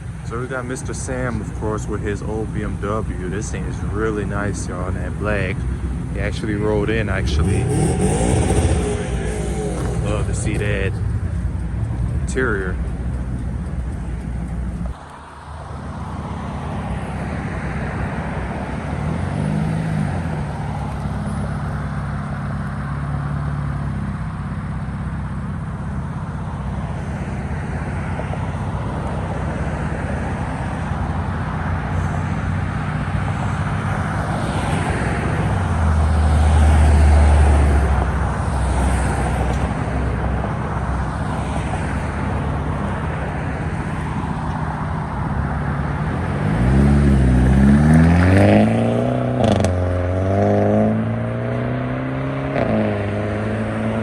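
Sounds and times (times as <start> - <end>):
deep exhaust rumble: 0.0 - 15.0
car engines running: 0.0 - 54.0.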